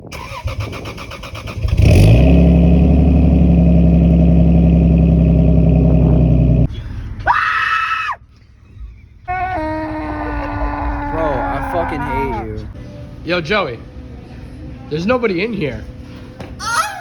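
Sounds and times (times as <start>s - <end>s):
car engine revving: 1.2s - 7.1s.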